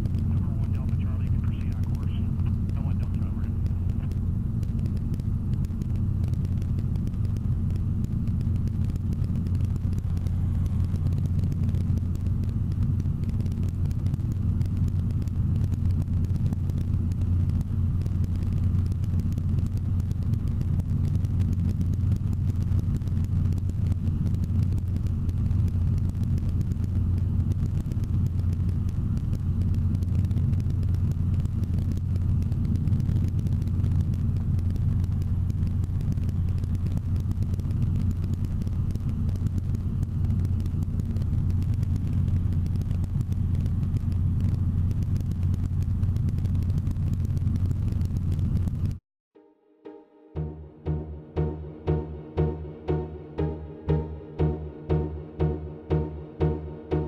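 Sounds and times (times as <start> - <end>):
helicopter engine and rotor drone: 0.0 - 38.0.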